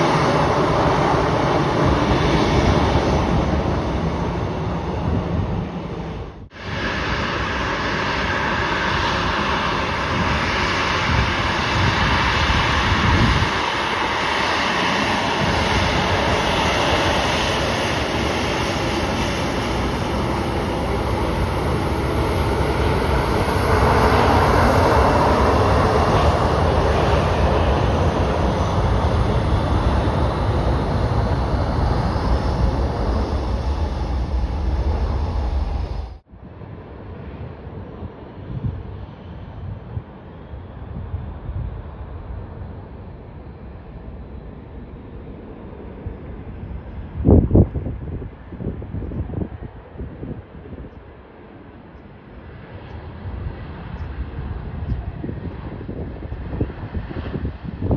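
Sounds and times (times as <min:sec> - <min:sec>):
jet engines roaring: 0:00.0 - 0:57.9
faint high whine: 0:19.2 - 0:36.2.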